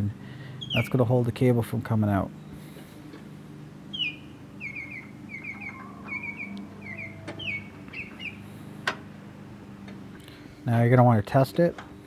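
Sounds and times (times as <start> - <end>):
low steady hum: 0.0 - 12.0
bird chirping: 0.5 - 1.1, 3.9 - 8.5.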